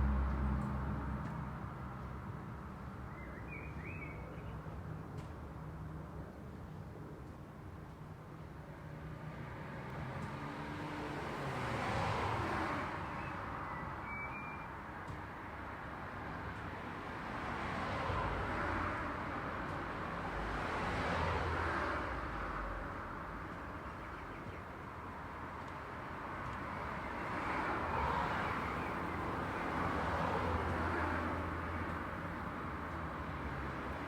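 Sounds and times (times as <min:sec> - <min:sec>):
cars passing: 0:00.0 - 0:02.8, 0:09.0 - 0:14.2, 0:16.4 - 0:34.0
background traffic: 0:00.0 - 0:34.0.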